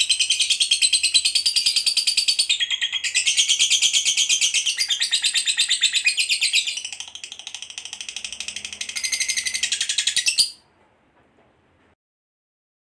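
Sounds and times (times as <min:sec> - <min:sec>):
lovebird chattering trill: 0:00.0 - 0:10.6.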